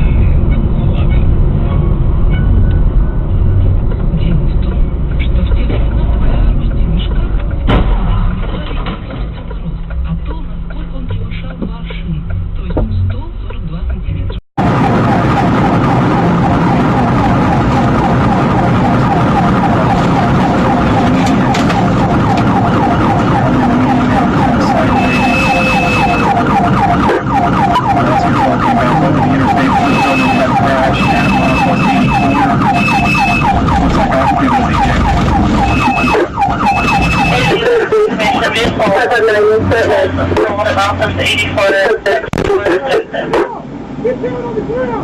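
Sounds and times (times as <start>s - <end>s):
vehicle engine and road noise: 0.0s - 45.0s
siren yelping: 14.6s - 41.8s.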